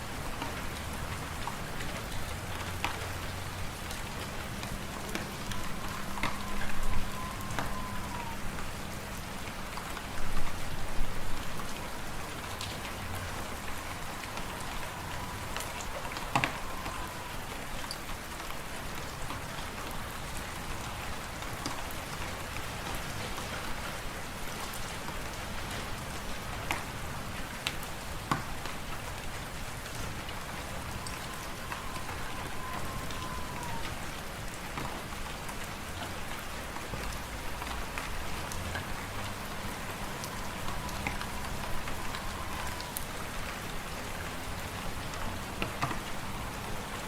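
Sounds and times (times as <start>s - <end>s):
faint falling whistle: 5.5s - 8.4s, 30.9s - 33.9s, 40.1s - 43.1s.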